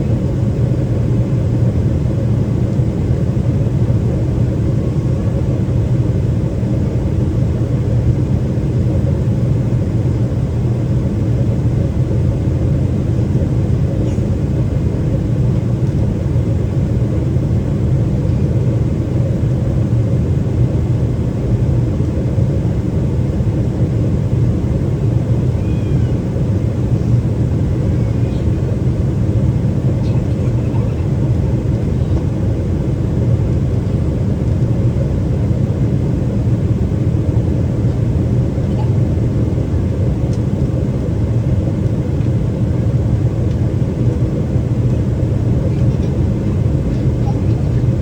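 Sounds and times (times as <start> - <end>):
airplane cabin engine drone: 0.0 - 48.0.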